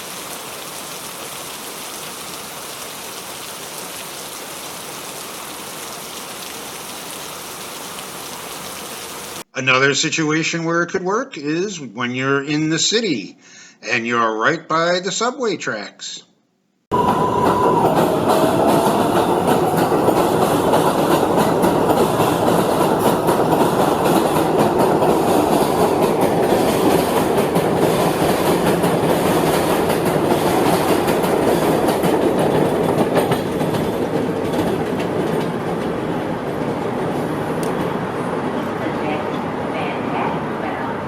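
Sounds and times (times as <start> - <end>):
subway train rumbling: 16.9 - 41.0
wheels clacking over rails: 17.0 - 38.5.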